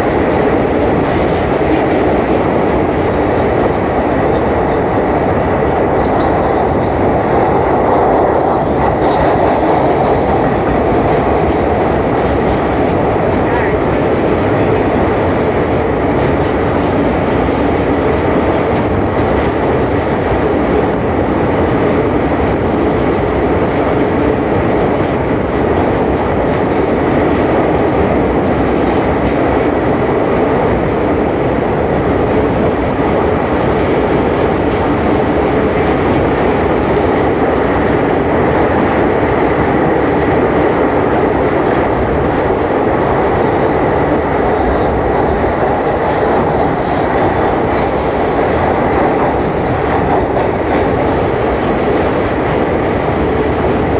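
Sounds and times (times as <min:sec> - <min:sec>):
train rumbling on rails: 0:00.0 - 0:53.9.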